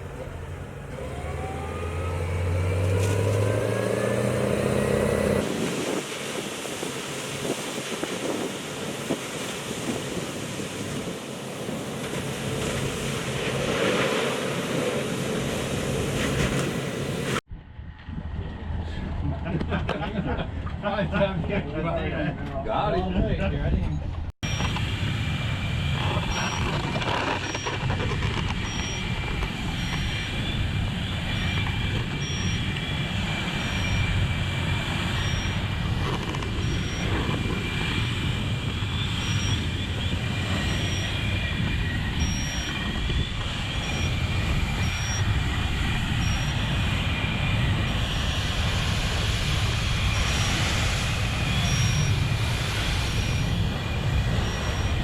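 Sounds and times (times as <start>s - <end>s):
heavy vehicle engine running: 0.0s - 5.5s, 24.4s - 55.0s
steady whine: 24.0s - 55.0s
short high beeps: 26.3s - 26.7s, 28.6s - 29.1s, 32.2s - 32.7s, 35.2s - 35.6s, 36.6s - 37.1s, 39.2s - 39.7s, 40.6s - 41.2s, 42.2s - 42.8s, 44.8s - 45.2s, 46.2s - 46.6s, 54.4s - 55.0s.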